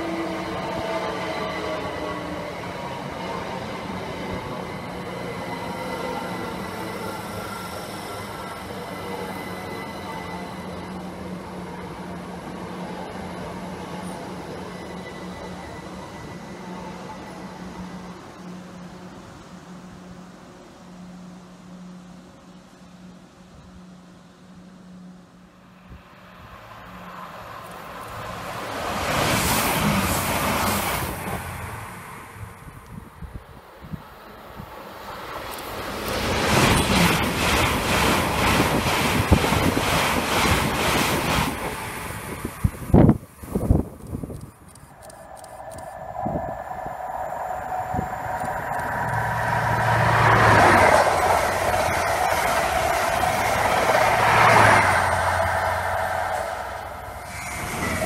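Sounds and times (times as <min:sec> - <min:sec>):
train passing at speed: 0:00.0 - 0:58.0
wheels rushing on rail: 0:00.0 - 0:58.0.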